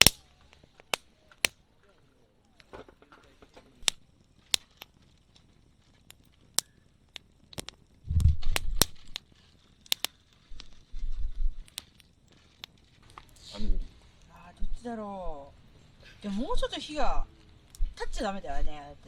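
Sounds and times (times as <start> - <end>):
wood fire crackling: 0.0 - 19.0
low rumbles: 7.4 - 9.2.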